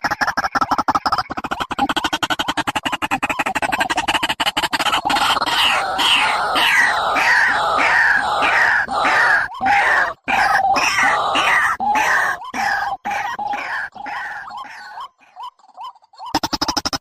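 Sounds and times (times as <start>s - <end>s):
bird calling: 0.0s - 17.0s.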